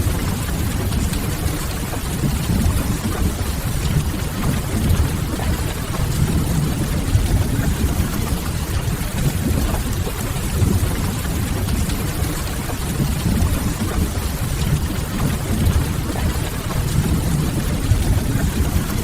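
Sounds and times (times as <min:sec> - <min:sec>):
rumble of rain and fire: 0:00.0 - 0:19.0.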